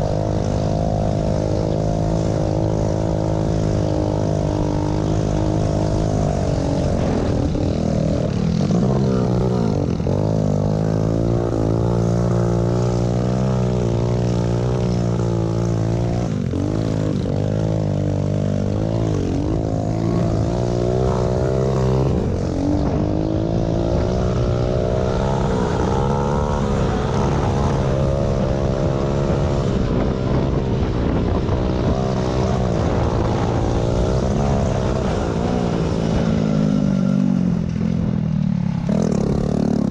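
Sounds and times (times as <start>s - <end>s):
small motorbike engines revving: 0.0s - 39.9s.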